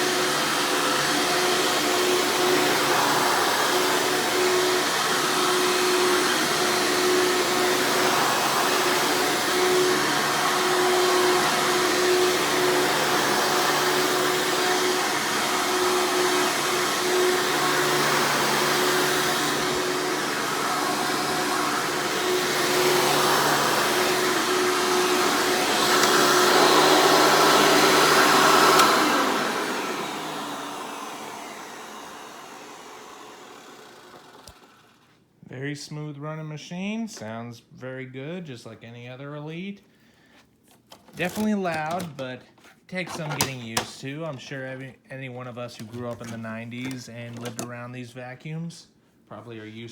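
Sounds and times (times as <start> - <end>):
upright vacuum cleaner running: 0.0 - 35.2, 41.2 - 42.2, 43.0 - 43.9, 45.8 - 47.7.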